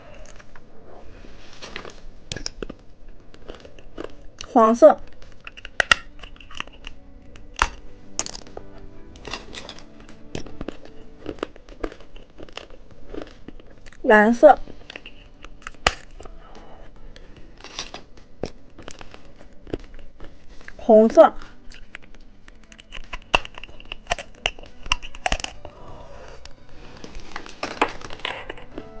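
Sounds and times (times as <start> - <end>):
faint background music: 0.0 - 29.0
hard candies clicking: 1.8 - 28.9
plastic packaging crinkling: 21.4 - 25.8, 26.4 - 29.0.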